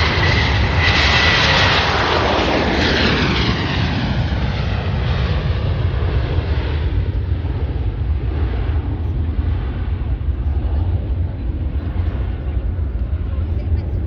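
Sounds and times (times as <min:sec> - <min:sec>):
aircraft flying past low: 0:00.0 - 0:14.0.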